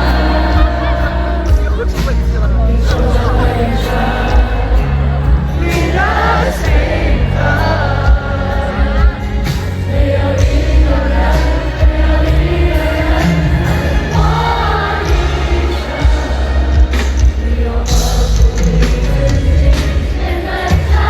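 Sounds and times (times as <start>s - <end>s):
live band with heavy bass: 0.0s - 21.0s.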